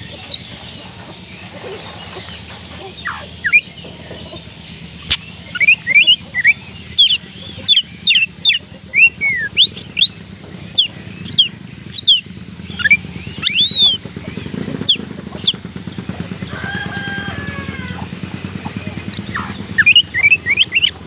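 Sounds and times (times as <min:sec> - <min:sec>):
bird singing whistled notes: 0:02.6 - 0:14.1, 0:14.8 - 0:15.6, 0:19.1 - 0:21.0.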